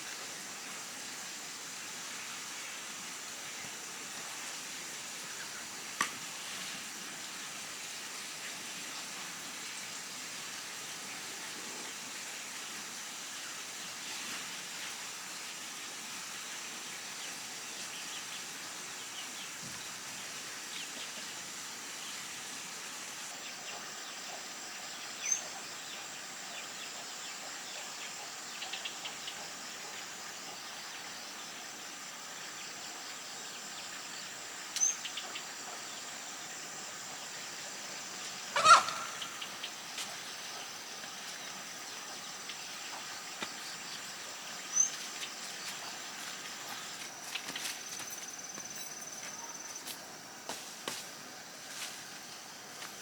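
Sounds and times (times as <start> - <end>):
rising bird chirp: 38.5 - 39.8.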